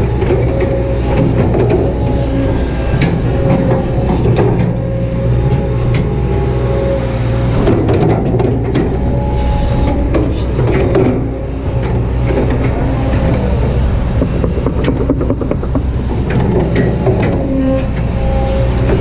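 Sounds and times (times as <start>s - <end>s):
excavator diesel engine running: 0.0s - 19.0s
hydraulic whine: 0.0s - 19.0s
machine clicks and knocks: 14.2s - 18.1s.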